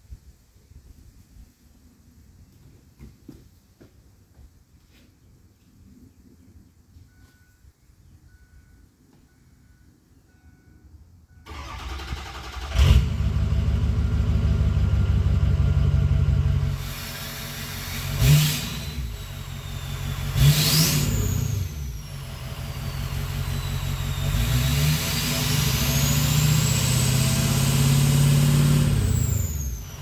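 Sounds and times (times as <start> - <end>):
faint beeps: 6.9 - 11.5
diesel truck engine revving: 11.5 - 30.0.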